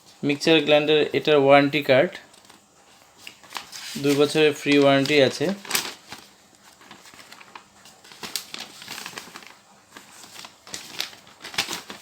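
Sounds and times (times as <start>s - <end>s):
plastic packaging crinkling: 2.3s - 12.0s.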